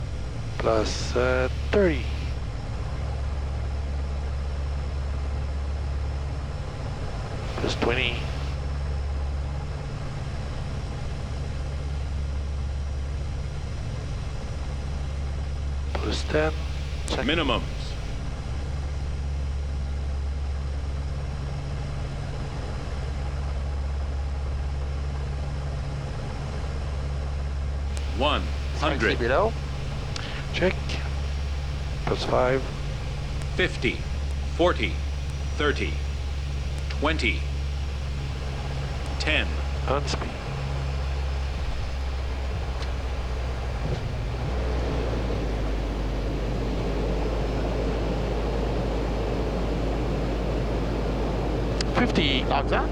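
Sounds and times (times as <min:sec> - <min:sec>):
turboprop engines droning: 0:00.0 - 0:09.2, 0:15.9 - 0:18.3, 0:27.9 - 0:52.9
rushing airflow: 0:00.6 - 0:02.4, 0:07.4 - 0:08.6, 0:15.9 - 0:18.2, 0:28.0 - 0:52.9.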